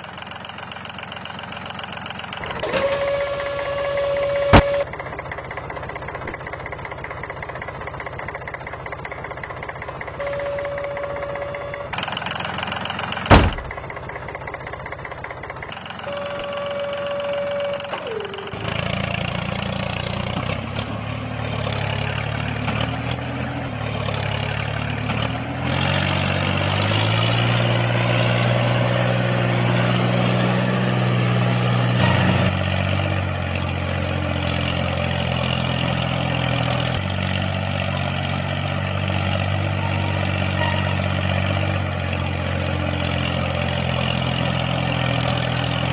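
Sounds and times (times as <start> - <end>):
model engine running: 10.2 - 13.8, 15.7 - 20.3.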